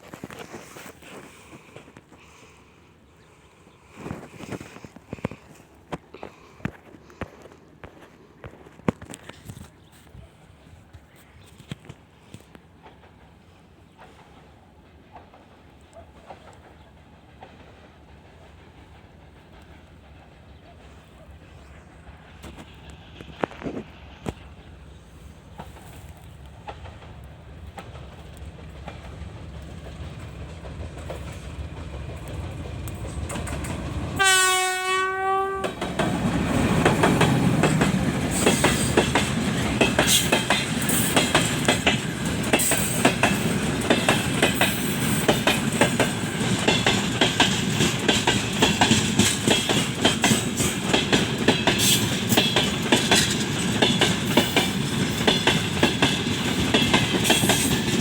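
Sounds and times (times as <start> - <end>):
wheels clickety-clack on rail joints: 4.0 - 58.0
train horn: 34.2 - 35.9.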